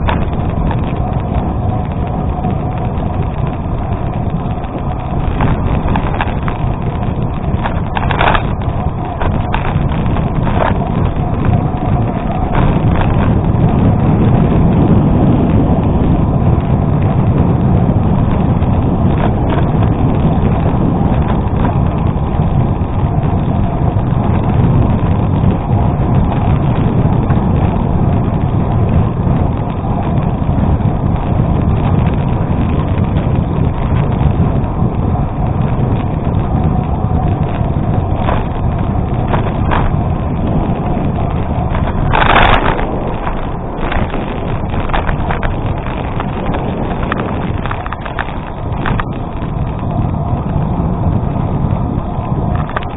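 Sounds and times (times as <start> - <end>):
tyres rolling over gravel: 0.0 - 52.9
wind buffeting microphone: 0.0 - 52.9.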